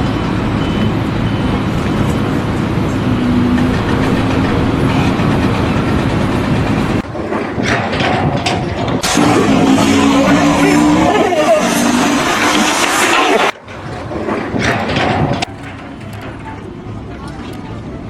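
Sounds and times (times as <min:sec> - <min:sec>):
heavy machinery rumble: 0:00.0 - 0:18.0
knocks: 0:03.5 - 0:11.2, 0:12.0 - 0:17.6.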